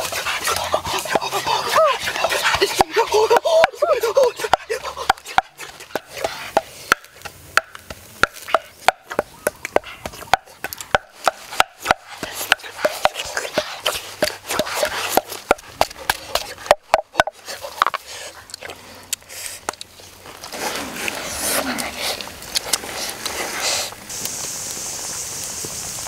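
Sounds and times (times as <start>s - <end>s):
open-mouth chewing clicks and smacks: 17.6s - 20.0s.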